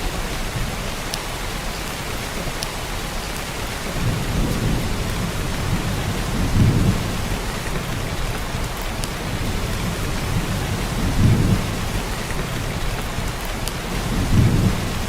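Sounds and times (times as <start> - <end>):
heavy rain downpour: 0.0 - 15.0
sharp drip ticks: 0.3 - 15.0.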